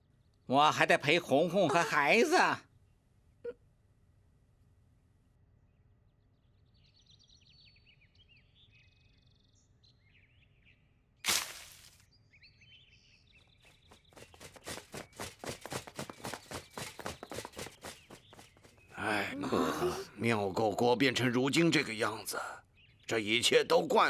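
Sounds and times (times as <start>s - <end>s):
faint bird chirps: 5.6s - 19.3s
quick regular taps: 14.0s - 19.0s.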